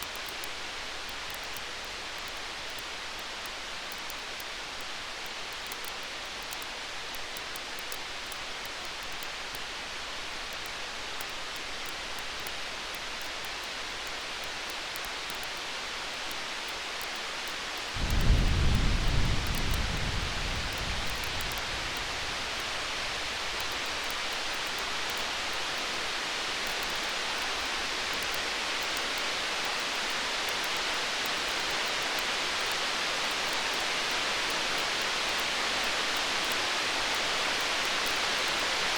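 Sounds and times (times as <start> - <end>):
campfire crackling: 17.0 - 29.0
stormy night hiss: 17.9 - 28.6
distant thunder rumble: 18.0 - 23.7.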